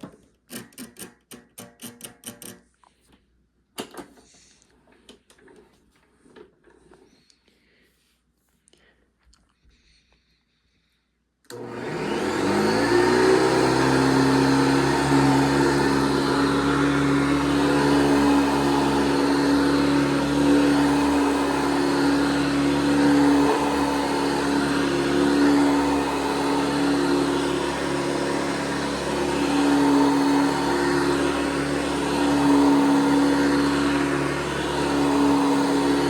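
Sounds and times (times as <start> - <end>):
vacuum cleaner motor whining: 11.5 - 36.0.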